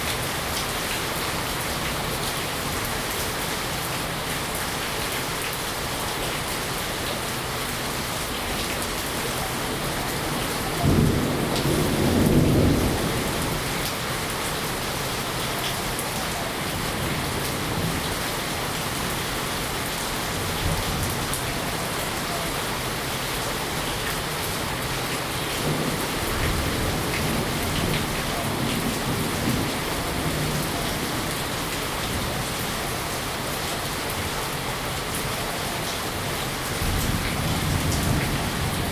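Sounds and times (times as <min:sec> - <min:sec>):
heavy rain hissing: 0:00.0 - 0:38.9
thunder rumbling: 0:10.2 - 0:14.8.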